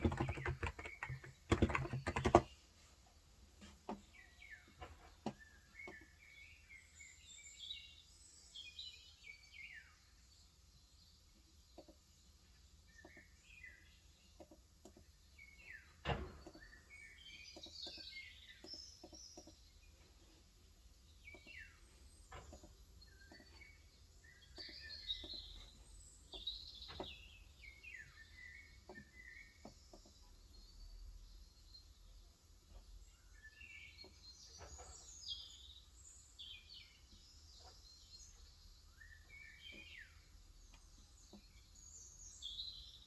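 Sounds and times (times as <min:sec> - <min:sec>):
keyboard keystrokes: 0:00.0 - 0:02.5
birds chirping: 0:00.0 - 0:02.7, 0:03.6 - 0:43.0.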